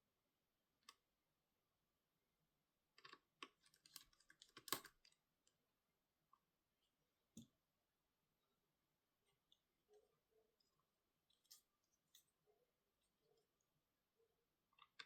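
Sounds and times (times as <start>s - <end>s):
small parts and tools clicking: 3.0s - 5.6s.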